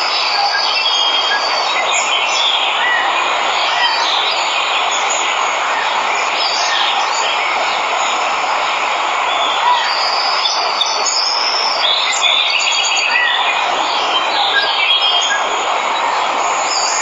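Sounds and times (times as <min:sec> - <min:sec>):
waterfall rushing: 0:00.0 - 0:17.0
birds chirping and whistling: 0:09.3 - 0:17.0.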